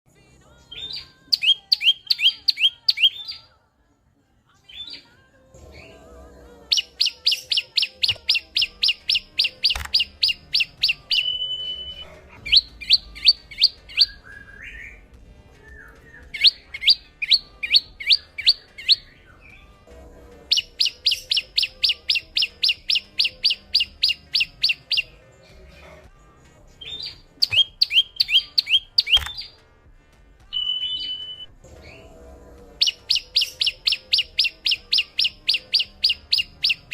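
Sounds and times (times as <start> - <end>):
bird singing fast trills: 0.7 - 3.5, 6.6 - 15.0, 15.7 - 19.8, 20.5 - 25.2, 26.8 - 29.6, 30.5 - 32.1, 32.8 - 36.9
bird whistle: 0.8 - 3.5, 6.7 - 15.0, 15.6 - 19.6, 20.5 - 25.2, 26.8 - 29.6, 30.5 - 32.1, 32.8 - 36.9.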